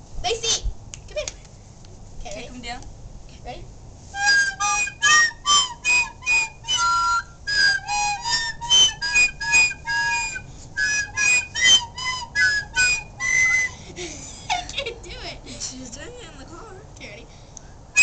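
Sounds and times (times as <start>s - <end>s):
recorder playing a simple tune: 4.2s - 13.8s.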